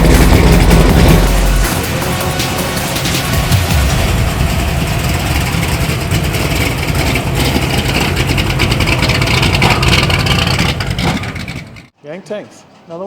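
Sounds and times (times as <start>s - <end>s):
car engine running: 0.0s - 11.9s.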